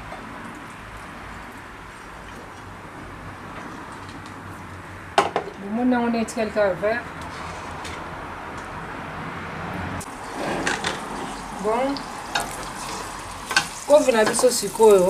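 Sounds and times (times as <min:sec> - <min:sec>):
people talking: 0:05.6 - 0:07.1, 0:11.6 - 0:12.1, 0:13.9 - 0:15.0
food sizzling in pot: 0:10.0 - 0:15.0
utensil scraping pot: 0:10.1 - 0:11.7.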